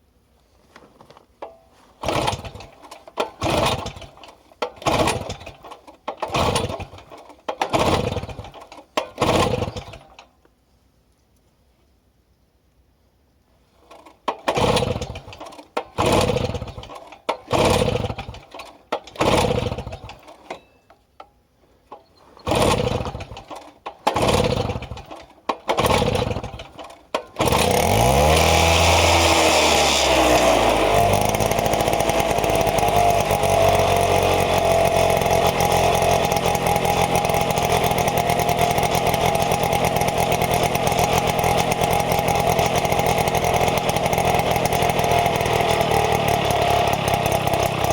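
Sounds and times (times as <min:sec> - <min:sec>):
outboard motor cranking: 0:02.0 - 0:10.2, 0:13.9 - 0:20.6, 0:21.9 - 0:47.9
outboard motor running: 0:27.4 - 0:47.9.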